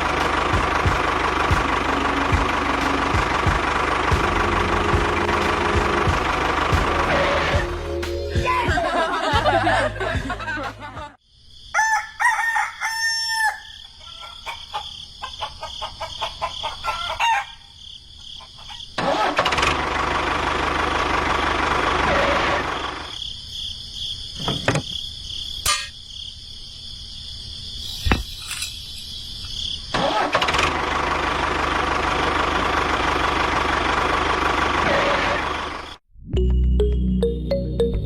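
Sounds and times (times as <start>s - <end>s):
rooster crowing: 11.7s - 17.8s.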